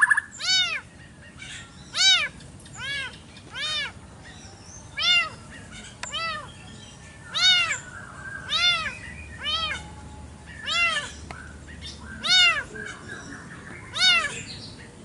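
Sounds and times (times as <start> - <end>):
cat meowing: 0.4 - 0.8, 1.4 - 4.0, 5.0 - 5.4, 6.1 - 6.5, 7.3 - 7.8, 8.5 - 10.0, 10.6 - 11.1, 12.2 - 12.7, 13.9 - 14.5.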